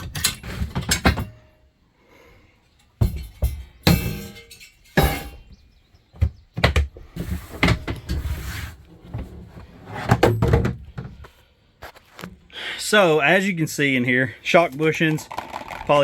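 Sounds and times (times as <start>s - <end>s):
plastic box knocks and thunks: 10.1s - 11.2s.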